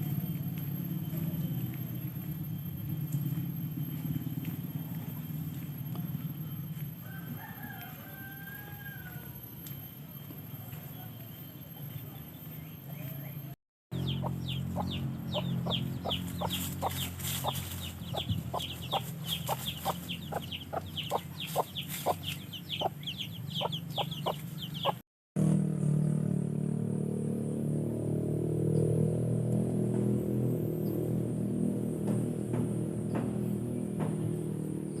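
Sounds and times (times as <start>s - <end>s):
steady low hum: 9.3s - 25.0s
chickens clucking: 14.0s - 25.0s
chicks peeping: 14.0s - 25.0s.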